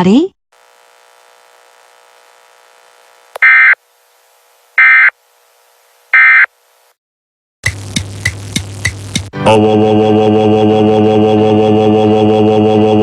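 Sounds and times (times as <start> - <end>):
faint electronic hum: 0.6 - 6.9.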